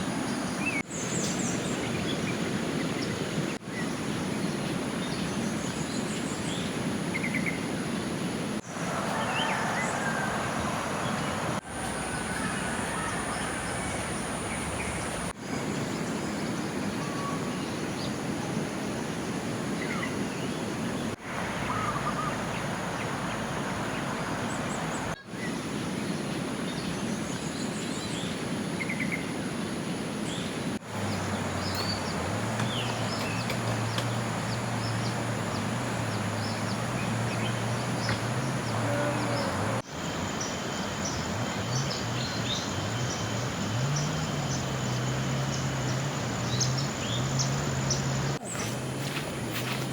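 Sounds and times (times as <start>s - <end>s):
water rushing: 6.7s - 16.5s, 18.3s - 26.6s, 29.4s - 49.9s.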